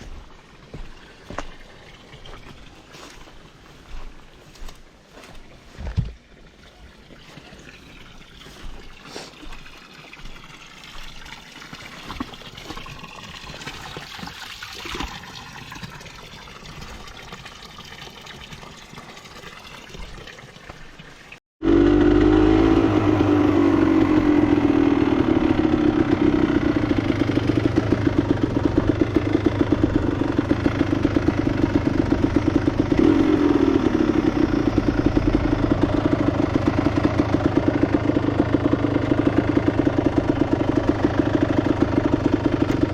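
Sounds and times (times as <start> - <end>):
motorcycle engine idling and revving: 21.6 - 42.9.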